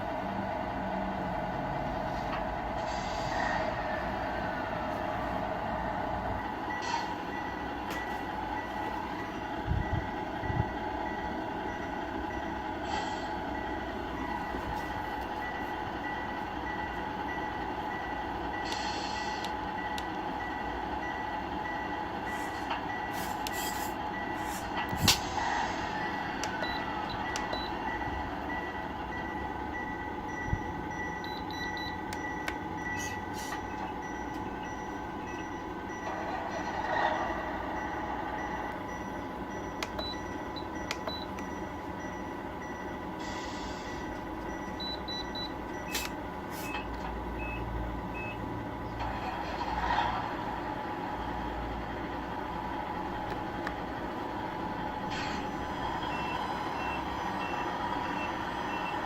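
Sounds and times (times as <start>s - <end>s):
simulated truck engine sound: 0.0s - 59.0s
short electronic beeps: 26.6s - 36.1s, 43.9s - 48.4s
clicks: 40.8s - 41.5s.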